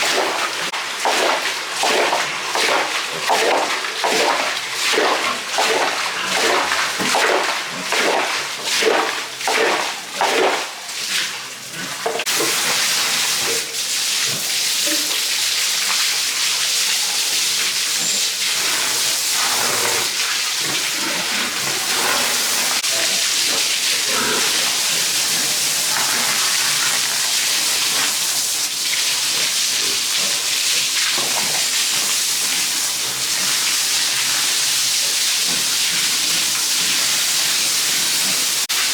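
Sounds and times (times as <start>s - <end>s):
hiss of running water: 12.2s - 38.9s.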